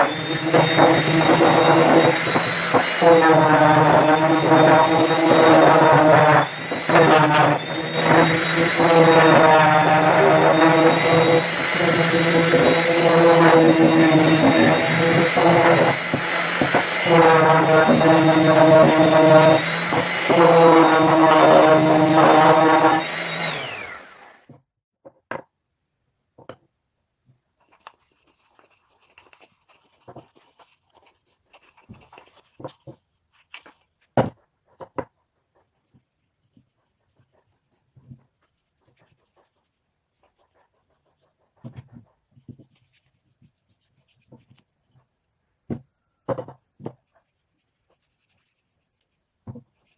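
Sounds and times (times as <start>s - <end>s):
electric power tool running: 0.0s - 24.5s.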